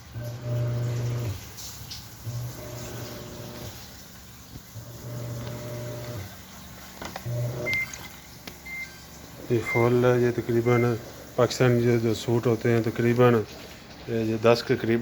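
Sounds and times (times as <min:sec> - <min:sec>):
washing machine drum motor hum: 0:00.0 - 0:15.0
washing machine clicks: 0:00.2 - 0:11.0.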